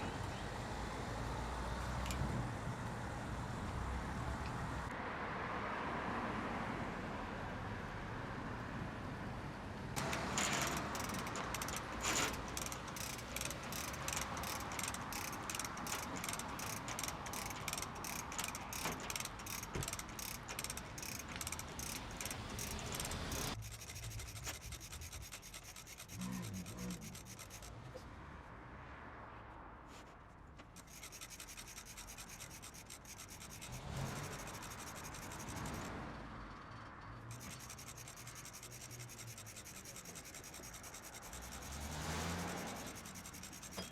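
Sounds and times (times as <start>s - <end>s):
ratchet pawl clicking: 10.0s - 27.8s, 30.6s - 36.0s, 37.3s - 43.9s.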